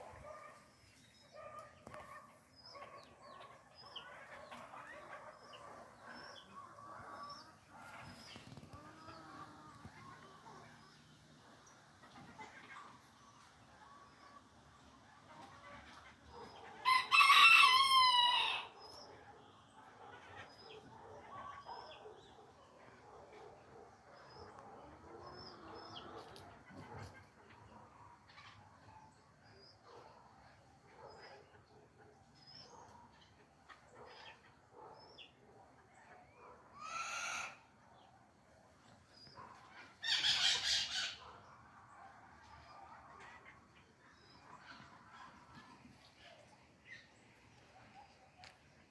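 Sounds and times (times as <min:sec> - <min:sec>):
small birds chirping: 0:00.0 - 0:15.0
rooster crowing: 0:16.8 - 0:18.7.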